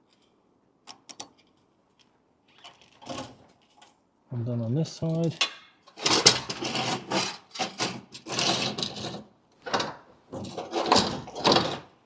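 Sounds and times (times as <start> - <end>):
scraping and rubbing: 5.9 - 9.3, 10.3 - 11.9.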